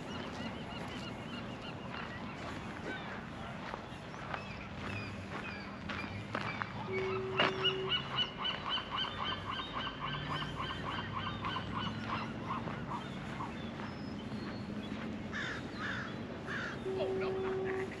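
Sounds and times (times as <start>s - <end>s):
bird calling repeated notes: 6.9s - 12.2s, 16.5s - 18.0s.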